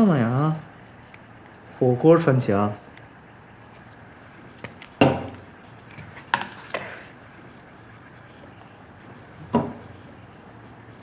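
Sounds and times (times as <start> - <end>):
hard objects knocking: 5.0 - 5.4, 9.5 - 9.9.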